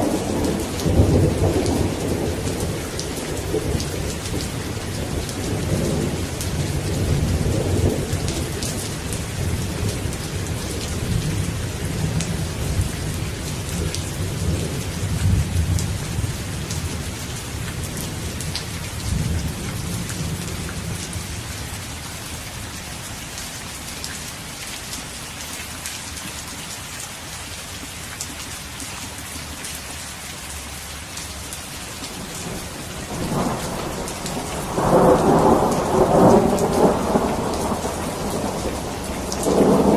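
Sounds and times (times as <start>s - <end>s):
steady rain: 0.0s - 39.9s
rolling thunder: 32.2s - 39.9s.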